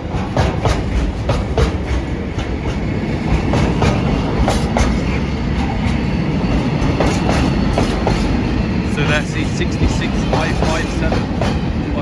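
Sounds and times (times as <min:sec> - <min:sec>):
wheels clicking over rail joints: 0:00.0 - 0:08.9, 0:09.7 - 0:12.0
freight train rumbling past: 0:00.0 - 0:12.0.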